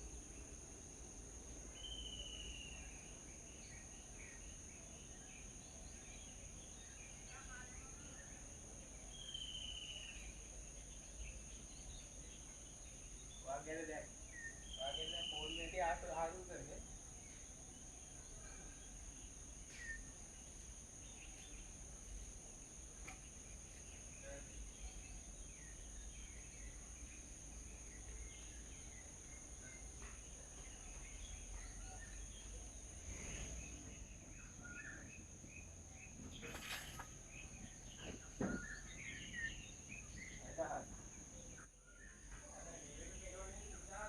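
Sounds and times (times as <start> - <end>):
small birds chirping: 0.0 - 44.0.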